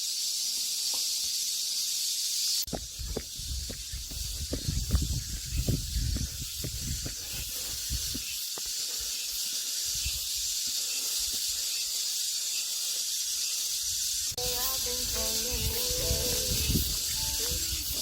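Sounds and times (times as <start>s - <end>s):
cicadas droning: 0.0s - 18.0s.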